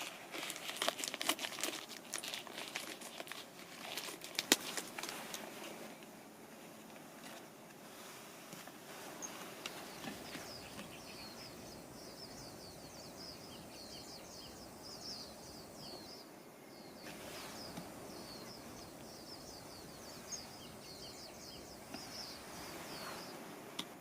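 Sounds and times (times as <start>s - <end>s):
soft outdoor hiss: 0.0s - 24.0s
birds chirping rapidly: 9.1s - 23.5s.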